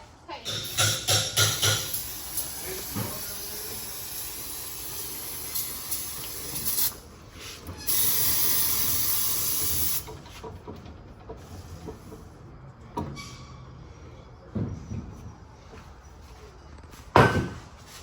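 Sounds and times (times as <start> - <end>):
pressurized air jet hissing: 0.5 - 7.0, 7.9 - 10.1
knock: 17.1 - 17.6.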